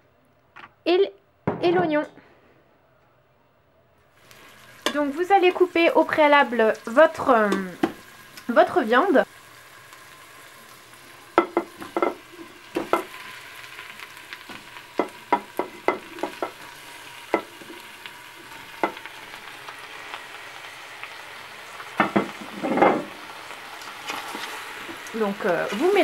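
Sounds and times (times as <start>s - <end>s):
chicken sizzling in oil: 4.2s - 26.0s
sharp pops and knocks: 22.0s - 23.1s.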